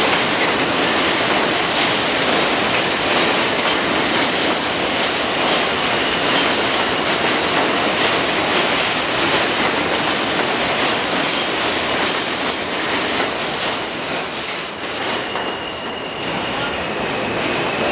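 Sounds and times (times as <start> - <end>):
train wheels rumbling on rail: 0.0 - 17.9
high-pitched wheel squeals: 4.0 - 4.8, 10.0 - 16.7.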